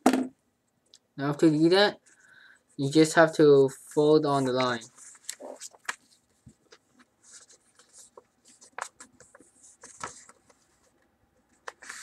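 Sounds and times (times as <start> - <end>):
paper rustling: 4.3 - 12.0
paper scraping swipes: 11.7 - 12.0.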